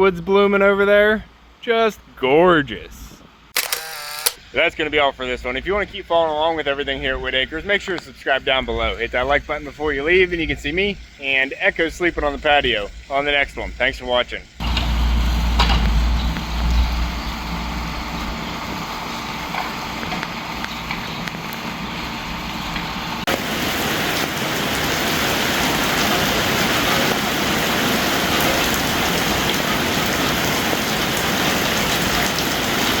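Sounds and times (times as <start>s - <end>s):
hiss of falling water: 23.3s - 33.0s.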